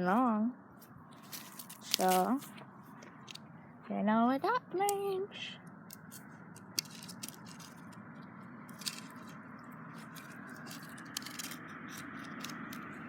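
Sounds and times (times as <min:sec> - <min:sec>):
steady rustling: 0:00.0 - 0:03.9, 0:05.6 - 0:13.0
twigs clicking and crunching: 0:00.8 - 0:03.4, 0:05.7 - 0:13.0.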